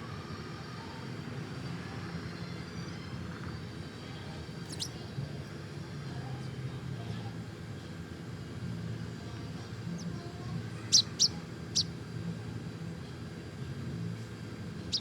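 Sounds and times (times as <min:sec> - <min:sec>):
steady low hum: 0:00.0 - 0:15.0
bird chirps: 0:10.9 - 0:11.9.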